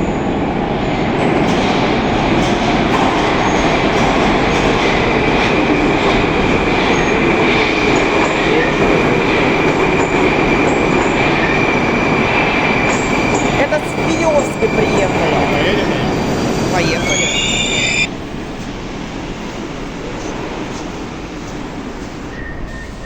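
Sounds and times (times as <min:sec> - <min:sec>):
metro train rolling: 0:00.0 - 0:23.0
high steady whine: 0:11.6 - 0:19.4.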